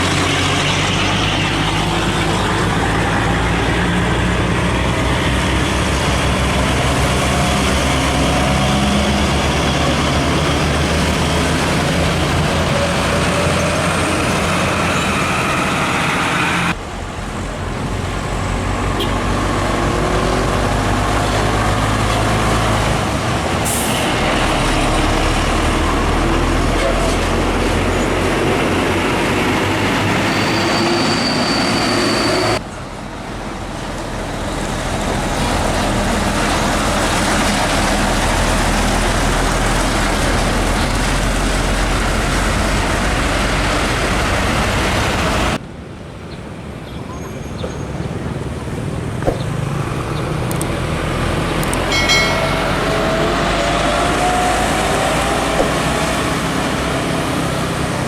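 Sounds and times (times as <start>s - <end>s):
diesel trucks passing: 0.0s - 58.0s.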